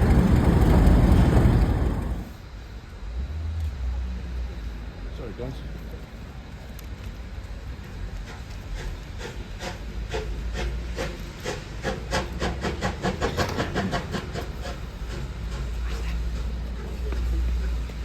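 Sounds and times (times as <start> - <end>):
train wheels clacking over joints: 0.0 - 2.4, 8.1 - 18.0
low train rumble: 0.0 - 18.0.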